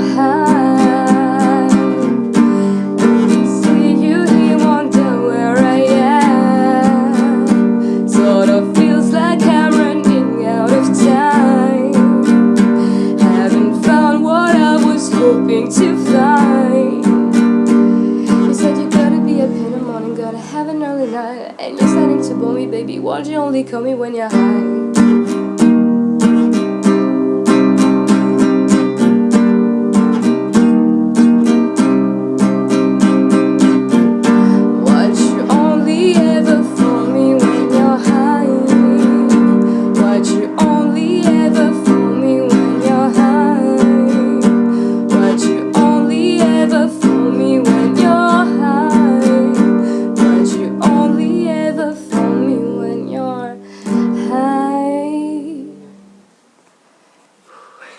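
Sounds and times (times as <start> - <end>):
strummed acoustic guitar: 0.0 - 56.4
wordless vocal melody: 34.1 - 55.8.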